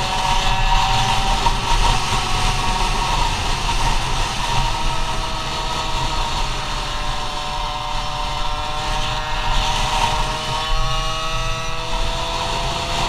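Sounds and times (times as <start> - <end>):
scooter two-stroke engine revving: 0.0 - 13.0.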